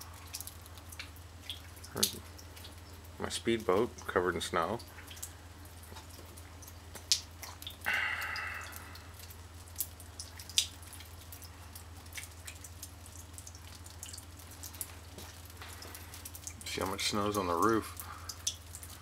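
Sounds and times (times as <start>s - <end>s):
water dripping: 0.0s - 19.0s
low hum: 7.8s - 9.7s.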